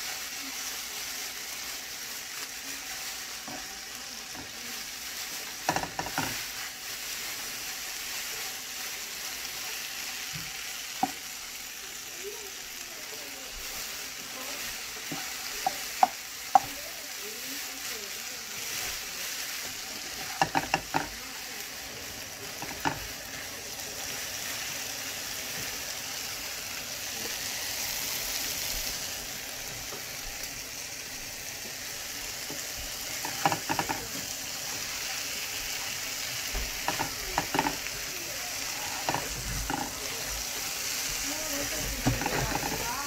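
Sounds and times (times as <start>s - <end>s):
food sizzling in a skillet: 0.0s - 43.0s
spatula scraping a pan: 4.3s - 8.4s, 33.0s - 35.1s, 36.6s - 43.0s.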